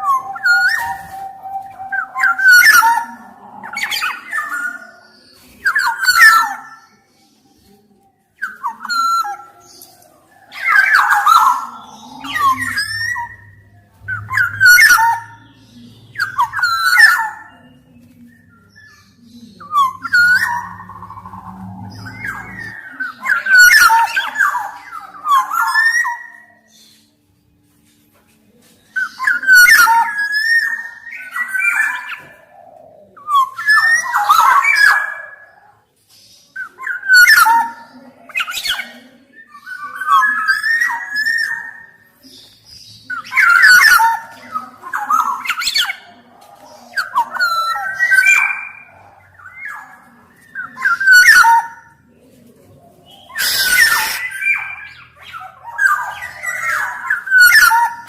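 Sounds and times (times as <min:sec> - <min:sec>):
bird singing fluty whistles: 0:53.2 - 0:58.0.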